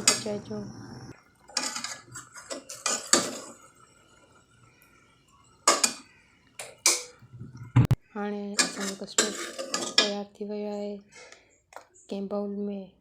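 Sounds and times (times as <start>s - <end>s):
spoon stirring and scraping pot: 1.5s - 3.8s, 8.6s - 10.2s.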